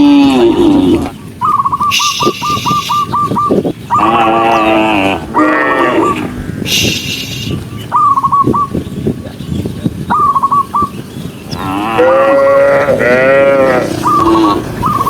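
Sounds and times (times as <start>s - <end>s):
cattle mooing: 0.0s - 1.2s, 3.9s - 7.4s, 11.5s - 15.0s
short high chirping calls: 1.2s - 11.6s, 14.0s - 15.0s.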